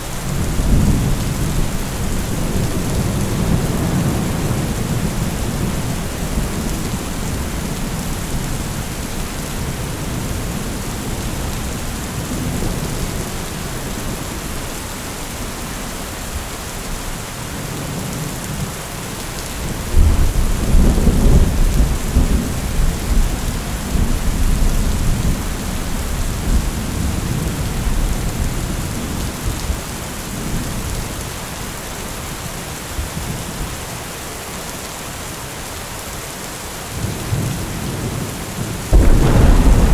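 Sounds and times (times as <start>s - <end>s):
heavy rain falling: 0.0s - 39.9s
thunder rumbling: 38.9s - 39.9s.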